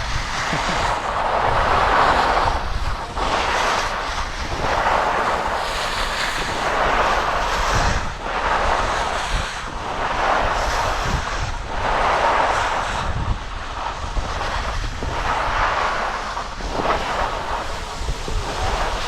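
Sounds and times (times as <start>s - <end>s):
skis scraping over snow: 0.0s - 19.0s
wind rumbling on microphone: 0.0s - 19.0s.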